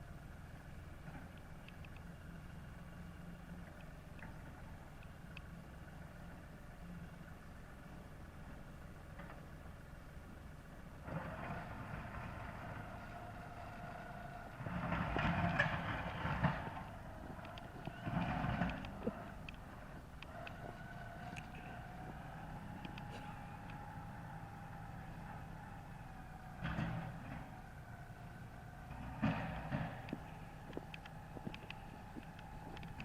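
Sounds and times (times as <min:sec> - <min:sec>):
tractor diesel engine running: 0:00.0 - 0:33.0
steady whine: 0:14.4 - 0:33.0.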